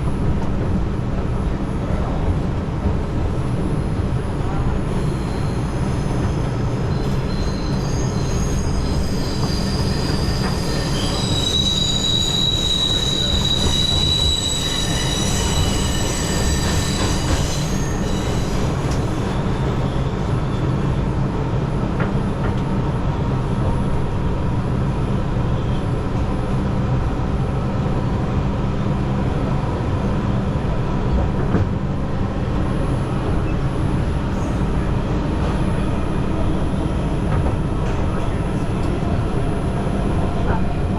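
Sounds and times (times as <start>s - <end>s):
subway wheels squealing: 0.0s - 26.9s, 28.4s - 40.9s
subway train rumbling: 0.0s - 40.9s.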